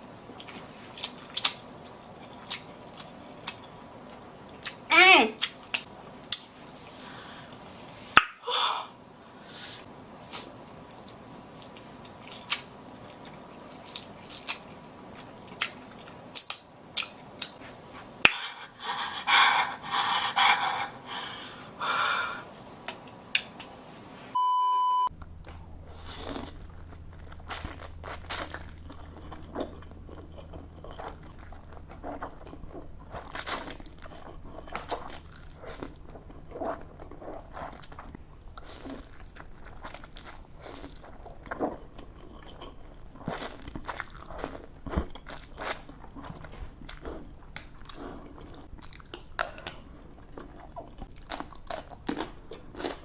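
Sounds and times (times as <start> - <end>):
short electronic beep: 24.4 - 25.1
chewing and slurping noodles: 25.4 - 53.0.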